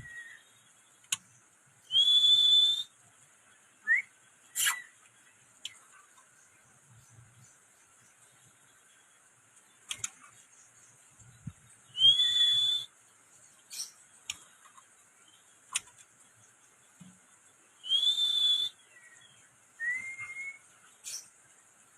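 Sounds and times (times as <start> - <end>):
bird long rising whistles: 0.0 - 0.5, 1.9 - 3.0, 3.8 - 5.0, 11.9 - 12.9, 17.8 - 19.2, 19.8 - 20.7
bird clicking calls: 1.0 - 1.4, 9.6 - 11.3, 13.6 - 14.9, 15.6 - 16.1.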